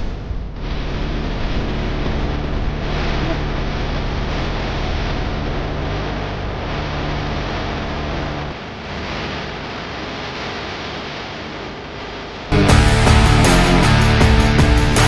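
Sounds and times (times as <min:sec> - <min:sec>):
low rumble: 0:00.0 - 0:10.4, 0:11.8 - 0:15.0.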